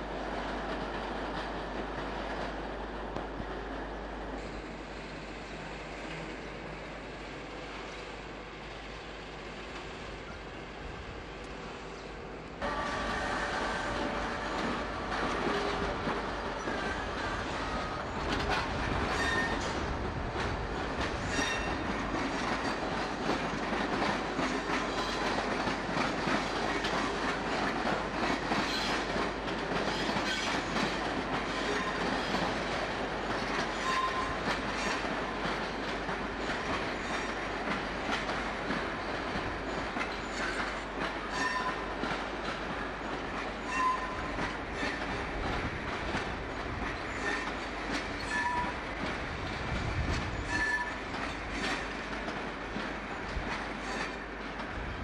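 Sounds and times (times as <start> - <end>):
train wheels clicking over rail joints: 12.8 - 55.0
high wheel squeals: 50.4 - 51.0.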